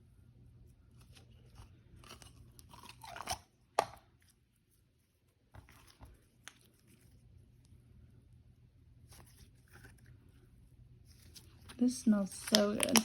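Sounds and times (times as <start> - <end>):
slime squishing and crackling: 11.1 - 13.0.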